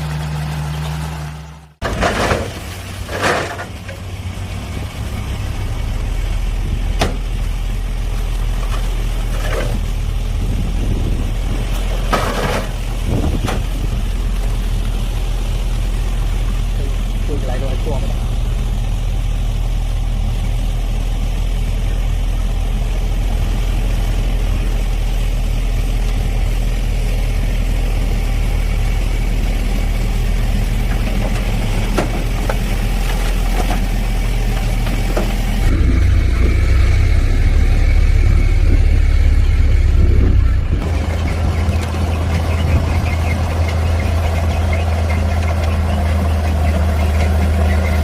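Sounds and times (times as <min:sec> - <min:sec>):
diesel machinery running: 0:00.0 - 0:48.0
sharp knocks and clanks: 0:07.0 - 0:07.3.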